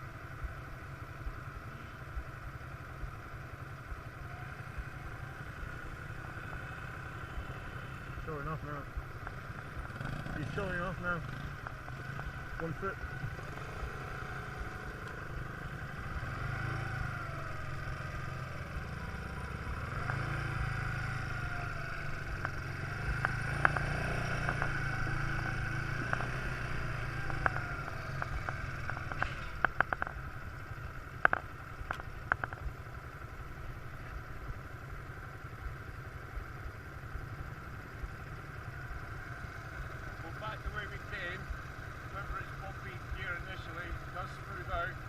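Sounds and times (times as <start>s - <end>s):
quad bike engine running: 0.0s - 45.0s
sharp clatters and knocks: 31.2s - 32.8s.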